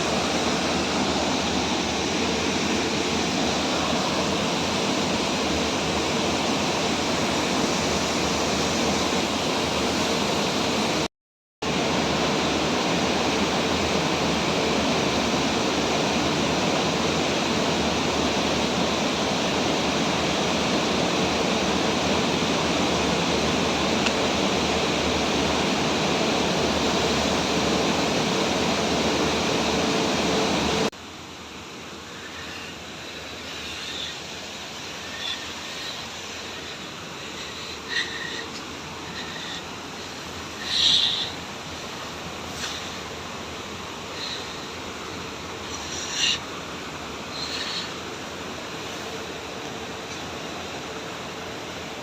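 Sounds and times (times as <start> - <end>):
waterfall roaring: 0.0 - 52.0.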